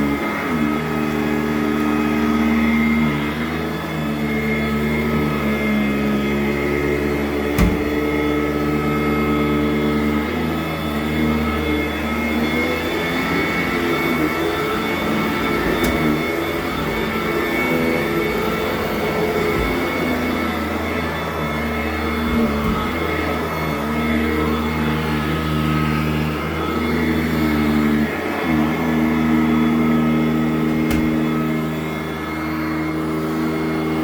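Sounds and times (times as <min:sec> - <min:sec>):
upright vacuum running over carpet: 0:00.0 - 0:34.0.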